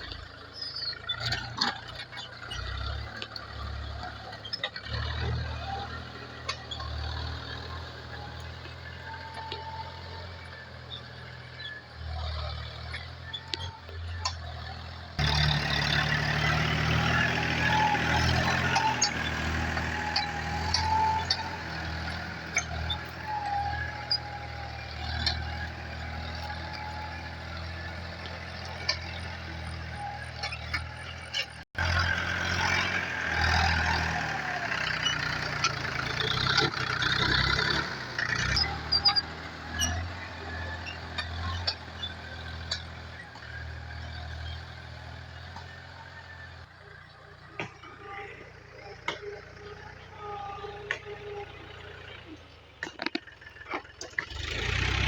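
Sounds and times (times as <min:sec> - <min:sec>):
tractor engine running: 0:00.0 - 0:55.0
clanks and ticks: 0:52.7 - 0:54.6.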